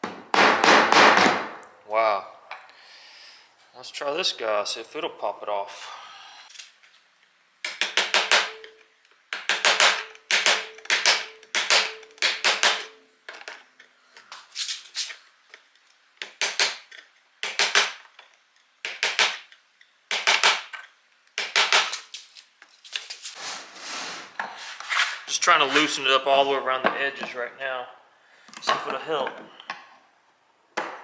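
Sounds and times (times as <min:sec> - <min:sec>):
mallet striking chisel into wood: 0:07.7 - 0:08.7, 0:09.3 - 0:12.9.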